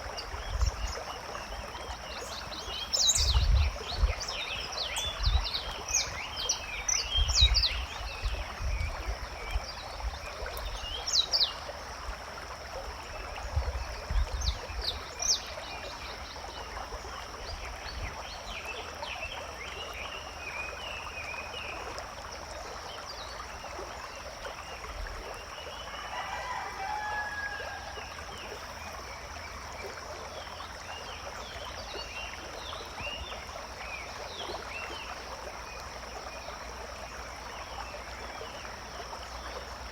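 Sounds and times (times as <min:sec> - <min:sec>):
small birds chirping: 0:00.0 - 0:11.6.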